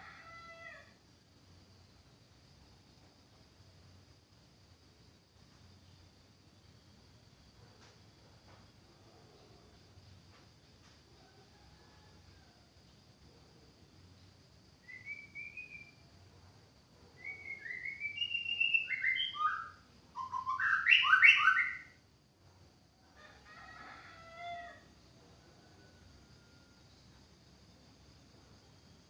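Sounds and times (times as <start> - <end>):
bird singing whistled phrases: 14.9 - 16.0, 17.2 - 22.0.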